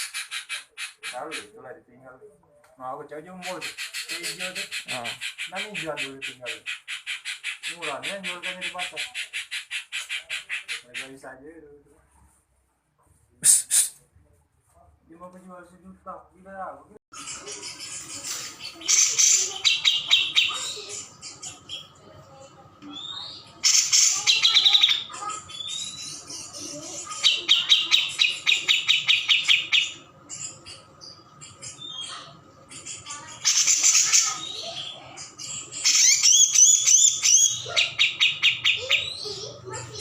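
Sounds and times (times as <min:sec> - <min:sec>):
bird chirps: 0:17.1 - 0:40.0.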